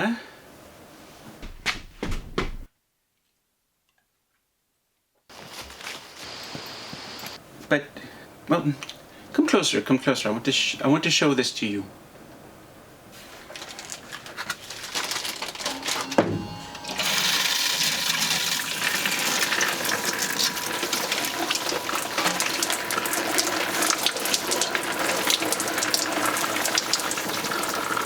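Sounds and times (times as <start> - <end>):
faint water pump whine: 5.4 - 7.4, 13.5 - 28.0
shower head spraying water: 15.6 - 28.0.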